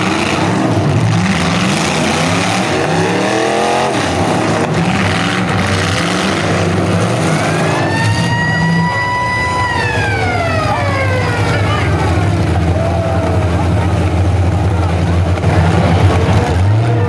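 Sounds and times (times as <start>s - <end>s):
car engines revving: 0.0s - 17.0s
low engine drone: 0.0s - 17.0s
siren winding up: 7.4s - 12.2s.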